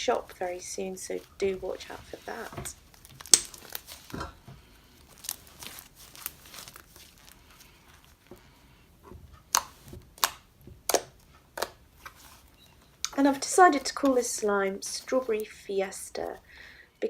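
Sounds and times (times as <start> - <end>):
slime popping: 1.8 - 7.4, 9.5 - 14.2
slime squished by hand: 1.8 - 8.3.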